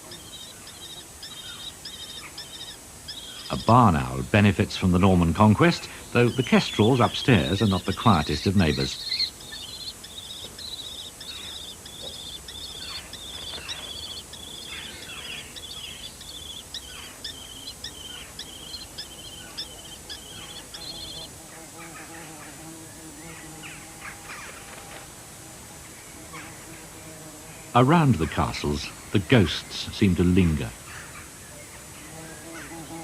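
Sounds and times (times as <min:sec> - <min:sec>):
kestrels calling: 0:00.0 - 0:22.3.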